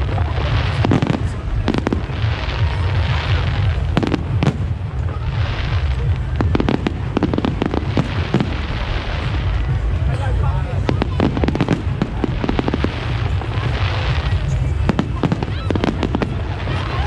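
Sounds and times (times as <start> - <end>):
deep rumble: 0.0 - 17.0
fireworks bangs: 0.0 - 17.0
hissing crackle: 0.0 - 17.0.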